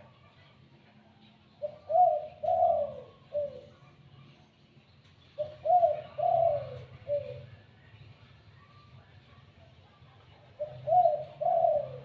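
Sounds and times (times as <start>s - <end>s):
dove cooing: 1.6s - 3.9s, 5.4s - 7.6s, 10.5s - 12.0s.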